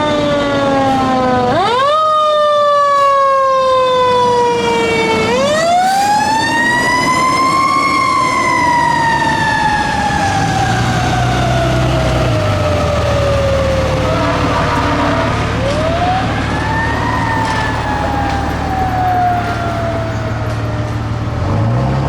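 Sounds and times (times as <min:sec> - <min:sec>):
fire engine siren wailing: 0:00.0 - 0:22.0.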